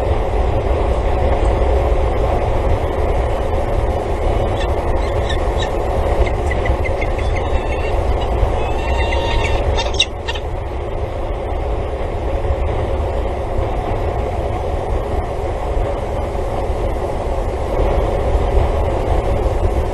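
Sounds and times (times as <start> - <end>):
low rumble and hiss: 0.0 - 19.9
harsh bird call: 4.4 - 10.4.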